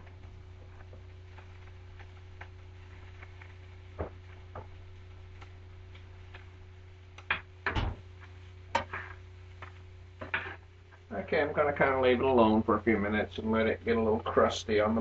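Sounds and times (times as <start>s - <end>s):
faint ticks and pops in a pan: 0.0s - 11.1s
steady low hum: 0.0s - 15.0s.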